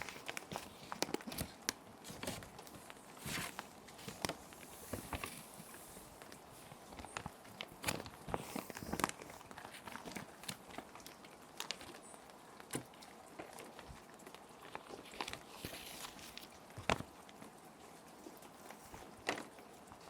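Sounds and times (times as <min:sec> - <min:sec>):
plastic sheet protectors crinkling: 0:00.0 - 0:17.1
paper sheets sliding: 0:03.2 - 0:06.3, 0:15.1 - 0:16.4.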